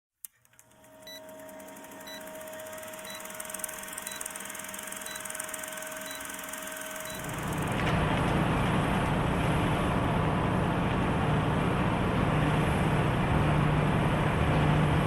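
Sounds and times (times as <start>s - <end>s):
steady mechanical hum: 0.3s - 15.0s
short high electronic beep: 3.0s - 7.6s.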